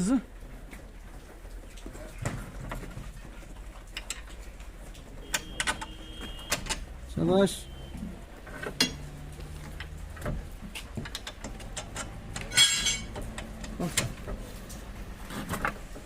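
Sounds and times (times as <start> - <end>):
metal tools clinking and knocking: 8.6 - 9.2, 11.0 - 14.0.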